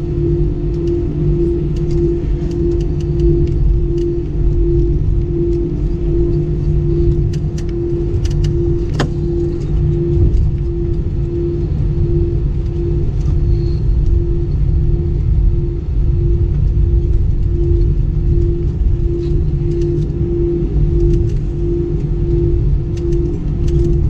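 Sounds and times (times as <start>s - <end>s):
pulsing hum: 0.0s - 24.0s
vehicle rumbling from inside: 0.0s - 24.0s
light clicks: 22.9s - 24.0s.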